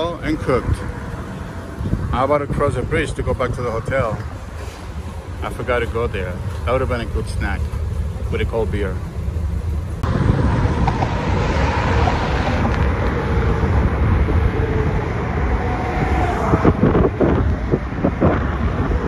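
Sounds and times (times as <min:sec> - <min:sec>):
wind on microphone: 0:00.0 - 0:05.2, 0:09.9 - 0:19.0
road traffic noise: 0:00.0 - 0:19.0
faint passing engine: 0:09.0 - 0:19.0.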